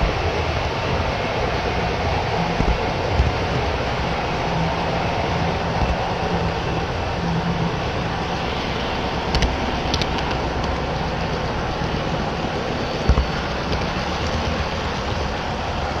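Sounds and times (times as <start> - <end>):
low motor hum: 0.0 - 16.0
model train wheels rumbling: 0.0 - 16.0
sharp clicks: 9.3 - 10.9.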